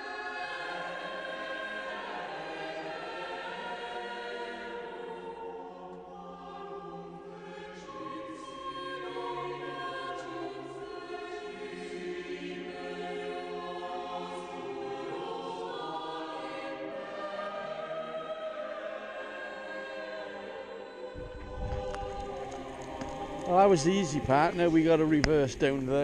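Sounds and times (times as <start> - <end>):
choral music with sustained voices: 0.0 - 26.0.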